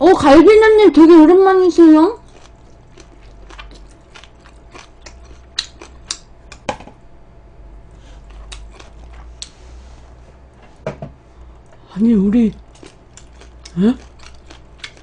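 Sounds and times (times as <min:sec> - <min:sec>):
crunchy chewing of fried chicken: 0:02.2 - 0:06.7, 0:07.9 - 0:10.1, 0:12.4 - 0:15.0.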